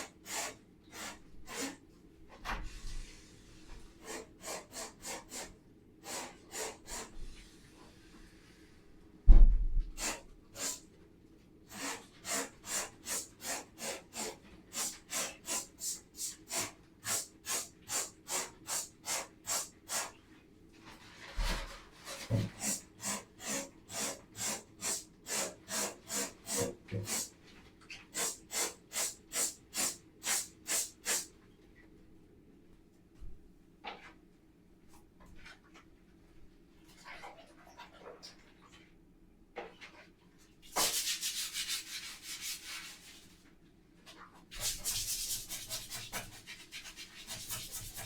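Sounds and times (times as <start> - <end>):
thump: 9.3 - 9.8
brush scrubbing a surface: 28.2 - 31.3, 40.6 - 43.4, 44.5 - 48.0.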